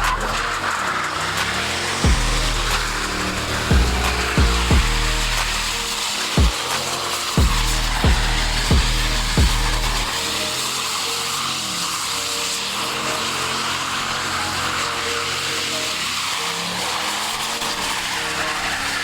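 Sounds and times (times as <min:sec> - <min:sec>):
vehicle engines revving: 0:00.0 - 0:19.0.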